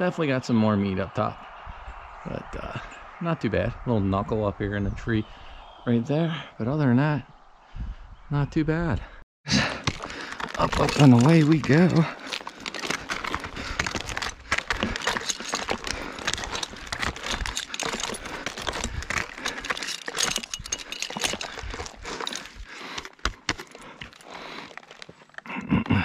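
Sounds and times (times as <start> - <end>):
metal climbing hardware clinking: 9.7 - 25.4
scraping and rustling against bark: 9.9 - 25.4.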